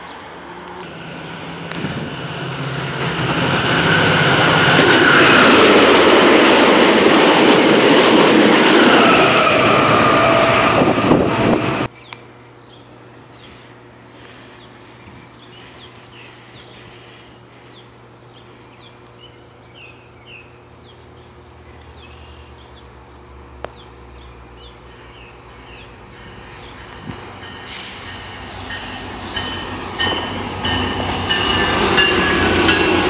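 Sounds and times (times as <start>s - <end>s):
train rumbling: 0.0s - 11.9s, 13.4s - 33.0s
birds chirping: 11.9s - 32.2s.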